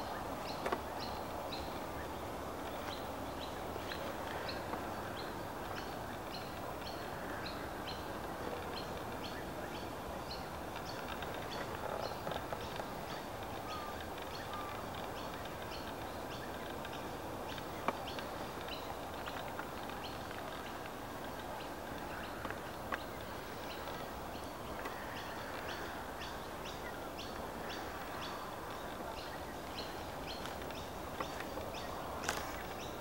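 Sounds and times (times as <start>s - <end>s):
birds chirping: 0.0s - 33.0s
steady background hiss: 0.0s - 33.0s.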